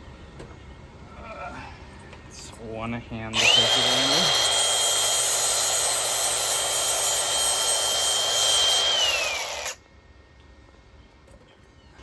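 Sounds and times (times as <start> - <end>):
power drill whining: 3.4 - 9.8.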